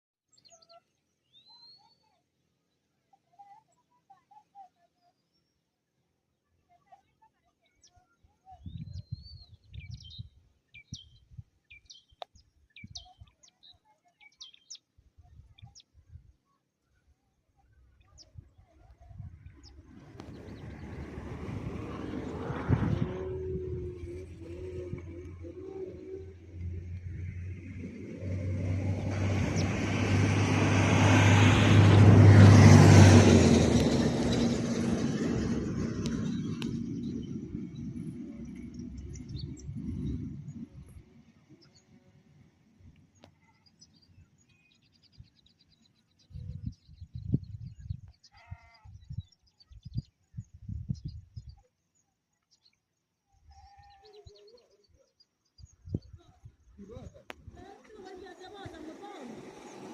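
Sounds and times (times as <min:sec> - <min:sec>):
low rumble: 0:19.0 - 0:41.4
vehicle driving past: 0:19.4 - 0:41.0, 0:57.9 - 0:59.9
birds chirping: 0:33.5 - 0:42.0.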